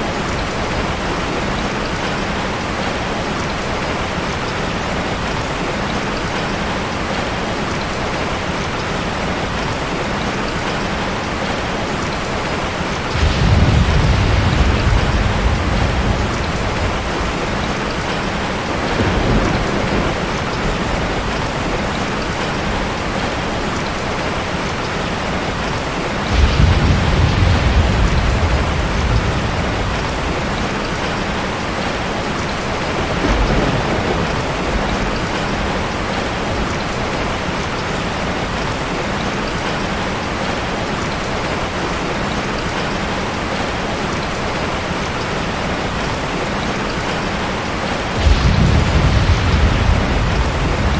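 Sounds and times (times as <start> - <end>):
heavy rain hissing: 8.6 - 38.9, 45.0 - 50.9
deep rumble of thunder: 12.3 - 23.4, 25.1 - 37.4, 47.6 - 50.9.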